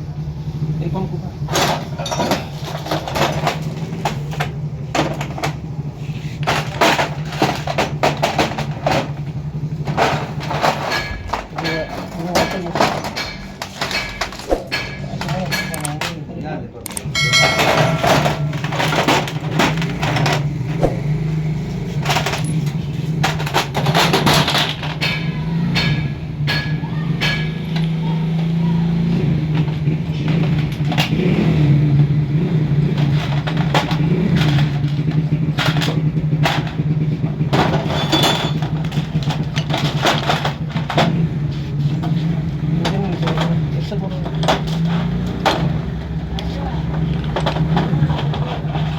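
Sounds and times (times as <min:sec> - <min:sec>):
engine idling: 0:00.0 - 0:48.9
metallic clicks of tools: 0:13.2 - 0:16.1, 0:16.8 - 0:18.9.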